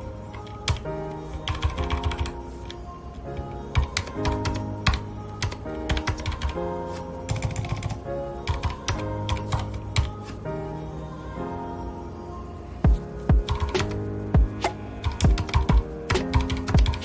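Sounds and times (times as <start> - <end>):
background music with held notes: 0.0 - 17.0
mechanical keyboard typing: 3.8 - 6.6, 13.5 - 14.0, 15.0 - 17.0.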